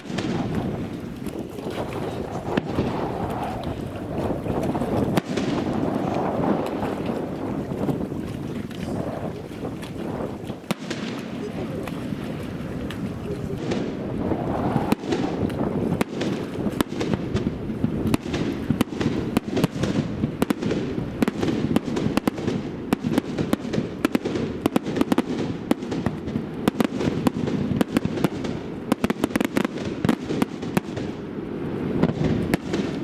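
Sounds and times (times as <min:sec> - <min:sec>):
low rumbling haze: 0:00.0 - 0:21.7
fireworks crackles and pops: 0:00.0 - 0:33.0.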